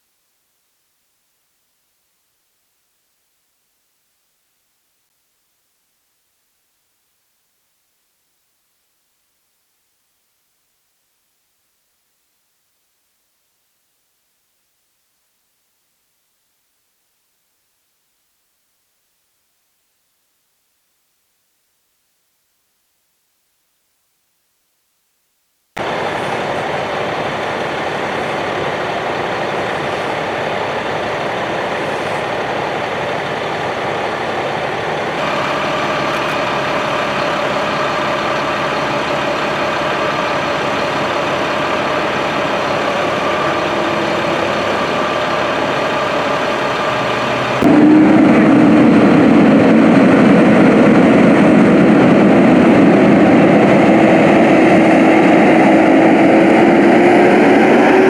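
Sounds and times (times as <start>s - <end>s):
vehicle engines running: 25.8s - 58.0s.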